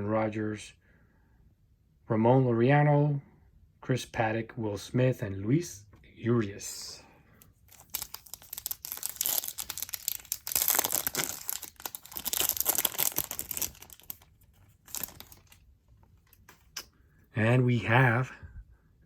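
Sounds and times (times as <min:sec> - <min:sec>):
foil wrapper tearing and crinkling: 0:07.7 - 0:15.6.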